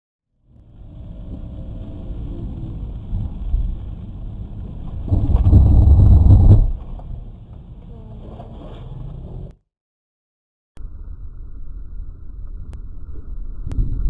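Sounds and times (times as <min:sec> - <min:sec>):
car driving on wet road: 0:00.5 - 0:09.5.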